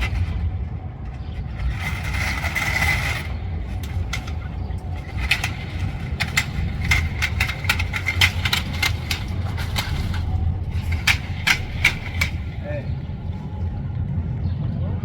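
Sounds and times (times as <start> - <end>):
low vehicle rumble: 0.0 - 15.0
rapid sharp clicks and knocks: 1.6 - 13.0.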